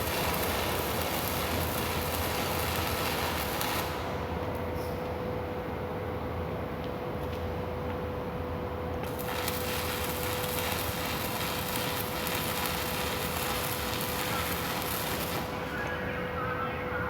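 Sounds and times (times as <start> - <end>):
arc welding crackle: 0.0 - 4.7, 8.9 - 16.1
steady hum: 8.4 - 17.0.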